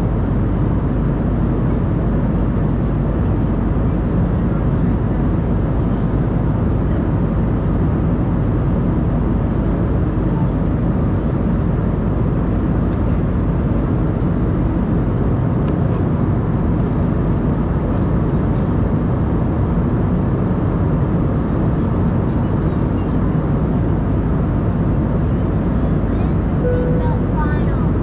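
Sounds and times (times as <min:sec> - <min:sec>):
jet engines droning: 0:22.9 - 0:28.0.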